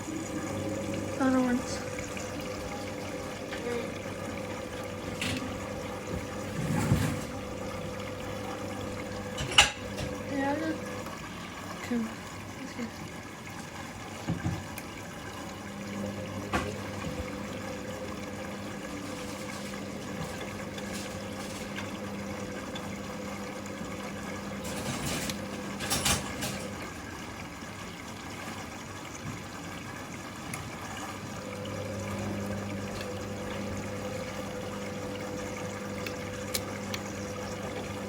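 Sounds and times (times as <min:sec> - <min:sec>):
clunks and splashes: 0:00.0 - 0:12.0, 0:14.2 - 0:14.9, 0:15.7 - 0:27.0
water rushing into washing machine: 0:00.0 - 0:38.0
washing machine knock: 0:01.2 - 0:10.2, 0:14.2 - 0:14.7, 0:16.3 - 0:18.2.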